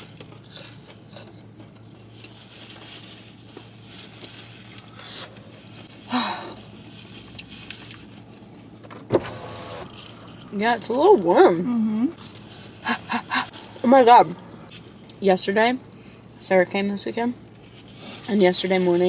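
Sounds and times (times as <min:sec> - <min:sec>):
faint rustles and clicks: 0:00.0 - 0:08.9
low steady hum: 0:00.0 - 0:19.0
person chewing: 0:00.1 - 0:02.5, 0:07.2 - 0:08.1, 0:12.2 - 0:13.8.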